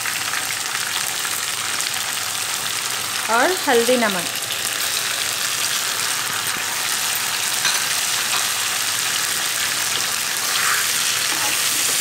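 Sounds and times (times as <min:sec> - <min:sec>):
oil sizzling in frying pan: 0:00.0 - 0:12.0
spatula stirring vegetables: 0:06.4 - 0:12.0.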